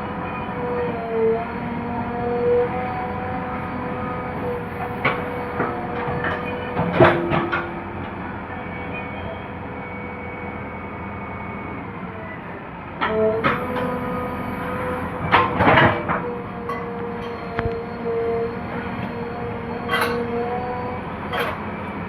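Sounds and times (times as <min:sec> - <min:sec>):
backhoe loader engine whining: 0:00.0 - 0:22.0.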